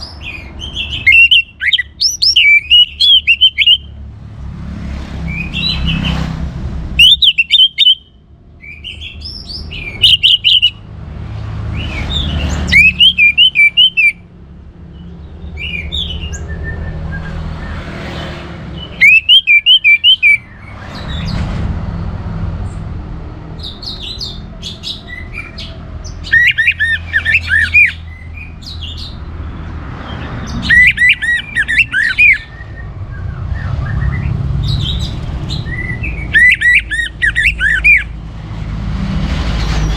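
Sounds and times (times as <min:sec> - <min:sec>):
thrush singing: 0:00.0 - 0:04.0, 0:07.0 - 0:08.1, 0:08.9 - 0:10.9, 0:11.8 - 0:14.2, 0:18.7 - 0:21.3, 0:23.6 - 0:29.2, 0:30.1 - 0:38.2
steady low rumble: 0:20.5 - 0:24.4.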